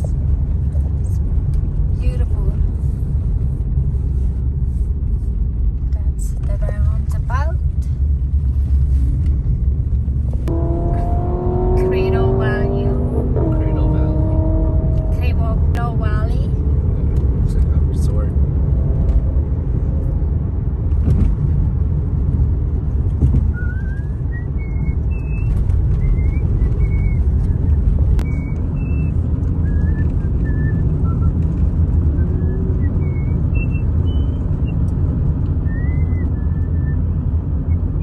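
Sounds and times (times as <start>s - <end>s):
car road and engine rumble: 0.0s - 38.0s.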